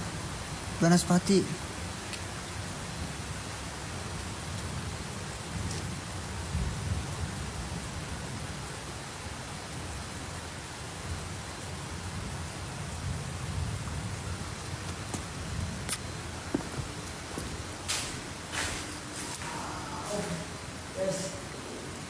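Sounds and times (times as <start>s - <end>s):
rain hissing: 0.0s - 22.0s.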